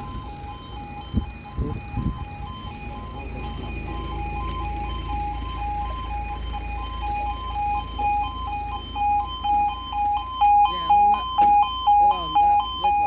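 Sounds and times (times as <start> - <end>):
low steady rumble: 0.0 - 13.0
two-tone warning alarm: 0.0 - 13.0.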